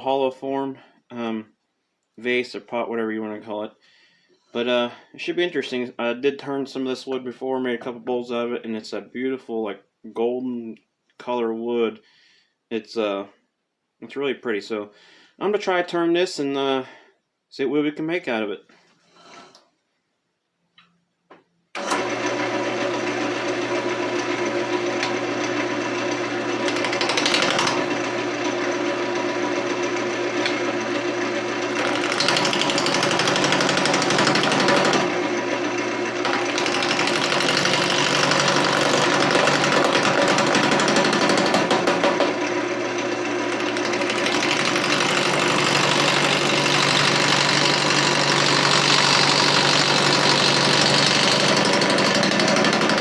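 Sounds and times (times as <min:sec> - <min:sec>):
wood lathe motor hum: 0:21.8 - 0:53.0.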